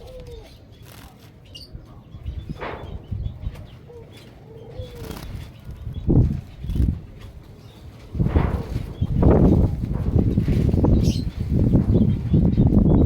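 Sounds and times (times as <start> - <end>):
dove cooing: 0.0 - 1.2, 2.2 - 6.9
birds fluttering wings in cage: 0.0 - 1.4, 2.5 - 13.0.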